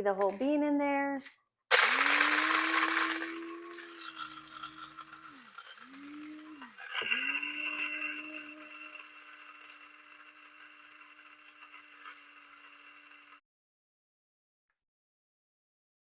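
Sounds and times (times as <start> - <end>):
coffee grinder whirring: 1.7 - 13.4.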